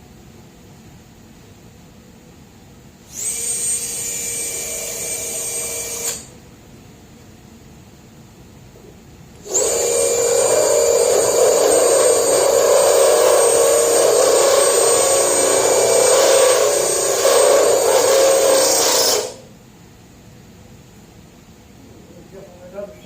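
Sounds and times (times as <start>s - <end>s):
die grinder whining: 3.1s - 6.3s, 9.4s - 19.4s.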